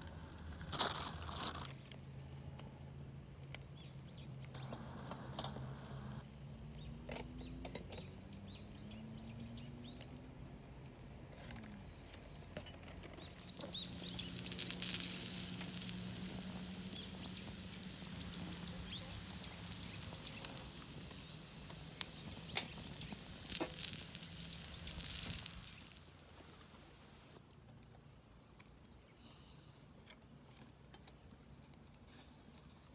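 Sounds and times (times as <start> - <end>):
campfire crackling: 0.0 - 1.7, 4.4 - 6.2, 13.1 - 26.4
fire popping: 0.0 - 1.8, 13.1 - 26.3
hissing sizzle: 4.5 - 6.2, 13.2 - 26.2.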